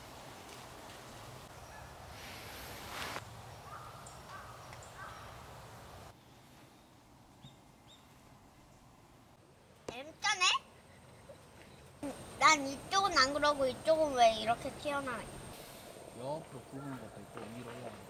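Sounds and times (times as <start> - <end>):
faint outdoor background noise: 0.0 - 18.0
bird calls: 3.5 - 8.8, 10.6 - 12.4.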